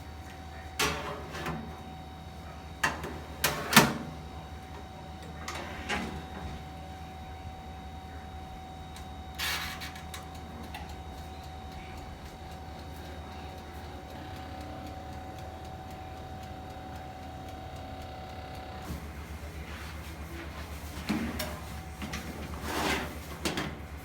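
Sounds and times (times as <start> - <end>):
kitchen appliance motor humming: 10.8 - 19.6.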